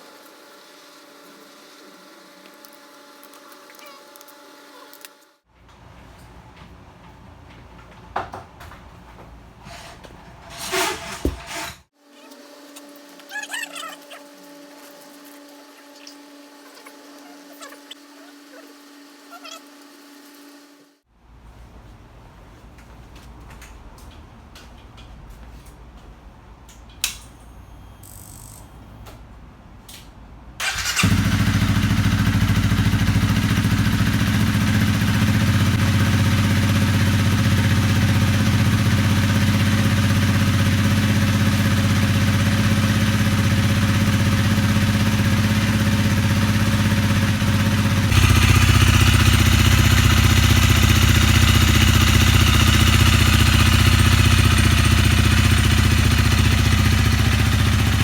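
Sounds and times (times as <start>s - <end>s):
motorcycle engine starting and idling: 30.6s - 58.0s.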